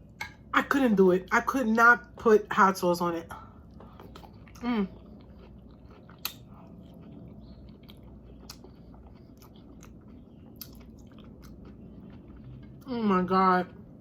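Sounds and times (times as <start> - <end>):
person chewing food: 3.4 - 12.9
wet mouth clicks: 6.1 - 6.5.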